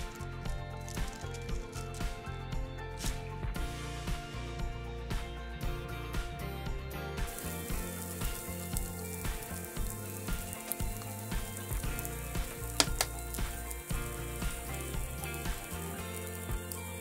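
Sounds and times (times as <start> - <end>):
food sizzling in a pan: 0.0 - 2.2, 7.1 - 17.0
background music: 0.0 - 17.0
sharp pops: 7.3 - 17.0.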